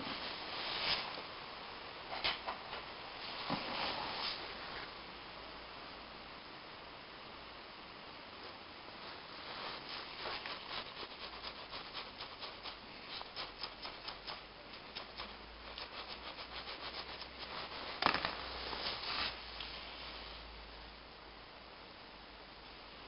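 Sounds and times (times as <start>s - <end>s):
rubbing strokes on metal: 9.4s - 18.0s.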